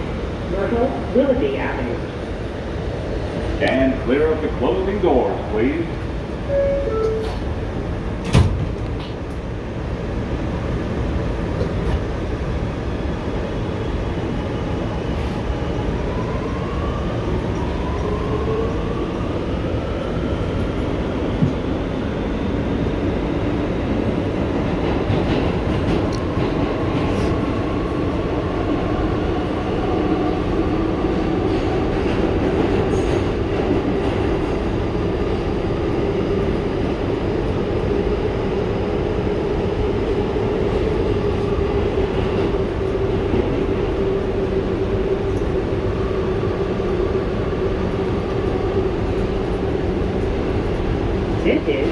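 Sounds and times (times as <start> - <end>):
train wheels rumbling on rails: 0.0 - 51.9
train doors shutting with a knock: 6.5 - 9.5, 21.3 - 21.8.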